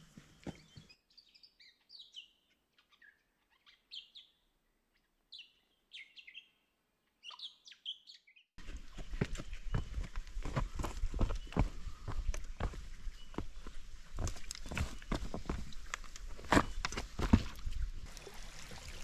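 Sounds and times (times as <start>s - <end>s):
small birds chirping: 0.3s - 17.3s
footsteps on a track: 8.6s - 15.6s.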